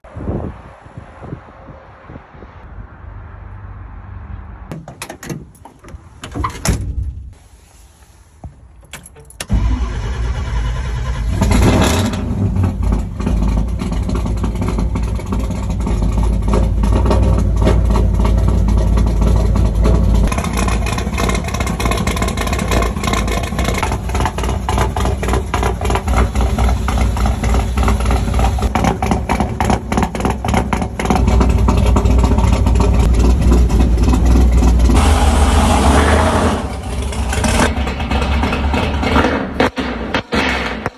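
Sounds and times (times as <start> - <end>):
engine cranking: 8.9 - 39.7
car engine idling: 9.5 - 39.5.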